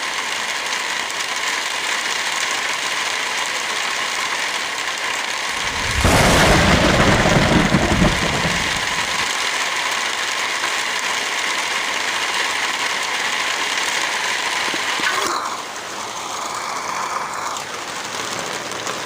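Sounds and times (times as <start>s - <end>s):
rain hiss: 0.1s - 19.0s
thunder rumble: 5.6s - 9.3s.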